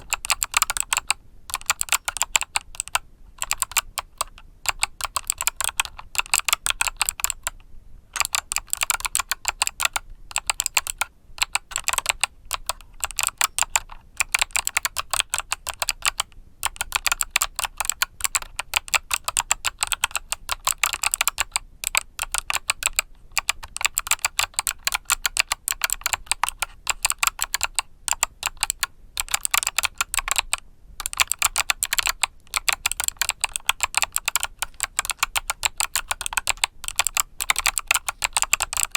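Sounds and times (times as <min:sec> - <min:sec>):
clicky mechanical keyboard typing: 0:00.0 - 0:38.9.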